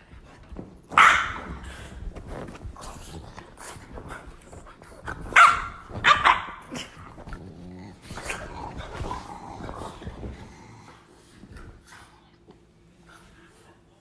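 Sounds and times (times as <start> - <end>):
dog barking: 1.0 - 1.6, 5.3 - 6.6
dog growling and snarling: 1.6 - 5.4, 6.6 - 11.8.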